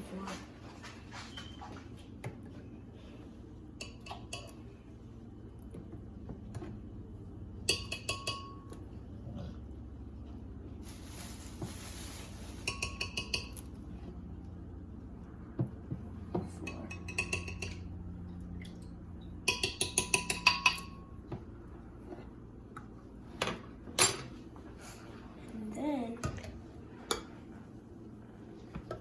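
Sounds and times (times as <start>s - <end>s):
metal spoon clinking on container: 16.7s - 17.9s.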